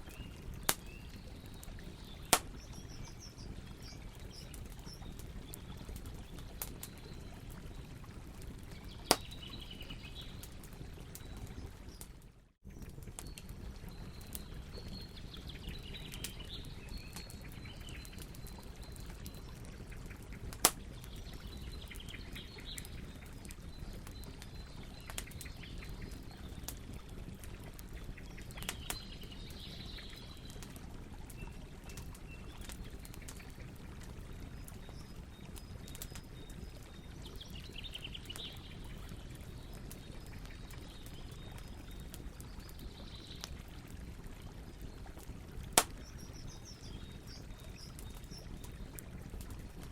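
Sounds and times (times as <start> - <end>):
birds chirping: 0.0 - 7.8
campfire crackling: 0.0 - 49.9.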